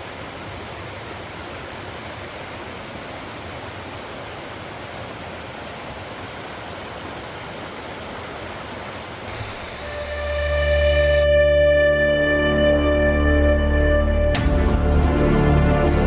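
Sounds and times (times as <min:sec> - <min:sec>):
waterfall rushing: 0:00.0 - 0:11.2
bright hiss: 0:09.3 - 0:11.2.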